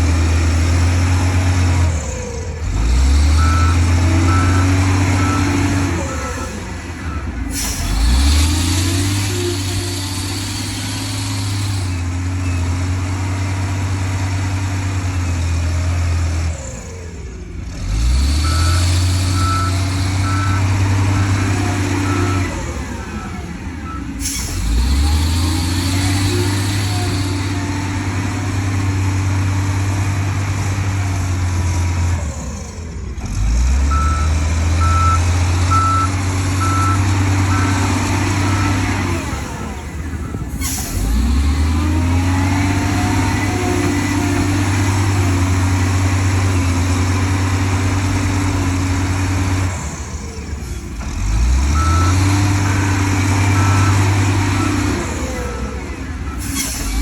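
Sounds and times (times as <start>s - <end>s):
heavy diesel engine running: 0.0s - 57.0s
reversing alarm beeps: 3.4s - 7.4s, 18.4s - 23.2s, 33.9s - 40.5s, 51.7s - 55.0s.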